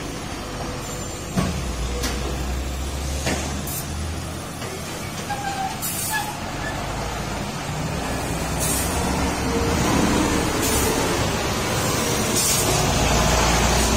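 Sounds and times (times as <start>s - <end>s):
air brakes hissing: 3.6s - 4.0s, 4.8s - 6.8s, 8.4s - 9.2s, 10.5s - 11.1s, 12.1s - 12.9s.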